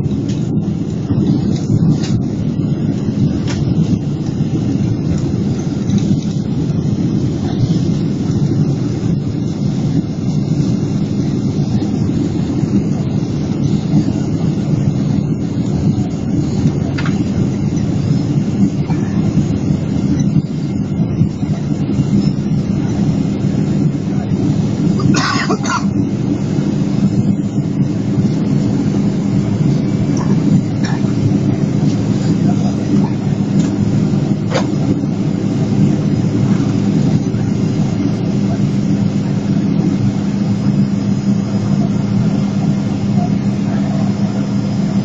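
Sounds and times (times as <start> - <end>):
airliner engine roar in cabin: 0.0 - 45.0.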